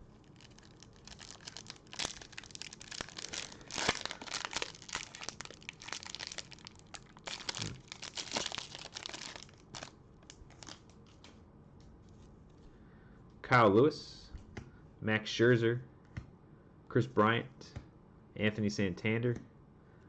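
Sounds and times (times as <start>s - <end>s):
wrapper crinkling and tearing: 0.2s - 11.4s.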